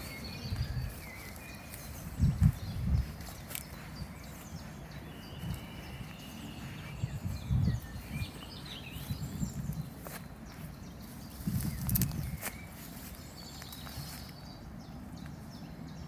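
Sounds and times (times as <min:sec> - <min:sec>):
birds chirping and whistling: 0:00.0 - 0:16.0
steady outdoor hiss: 0:00.0 - 0:16.0
dull low thumps: 0:02.0 - 0:03.3, 0:06.6 - 0:10.0.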